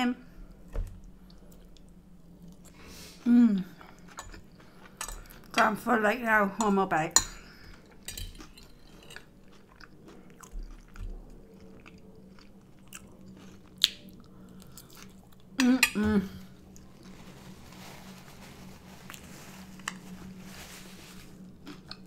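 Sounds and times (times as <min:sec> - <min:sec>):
person chewing: 0:07.7 - 0:15.6, 0:21.4 - 0:22.0.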